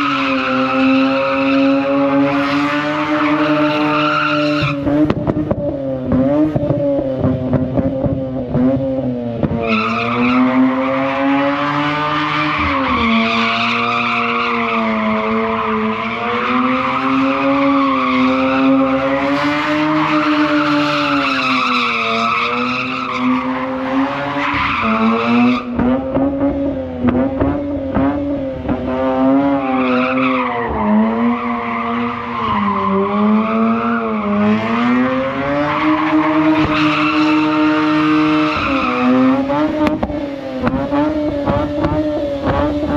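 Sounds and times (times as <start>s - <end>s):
rotary engine revving: 0.0s - 42.9s.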